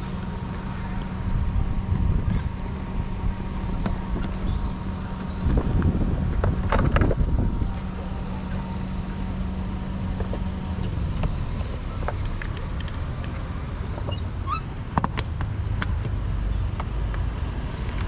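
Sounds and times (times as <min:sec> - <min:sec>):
motorcycle engine droning: 0:00.0 - 0:12.6
wind on microphone: 0:01.2 - 0:08.1.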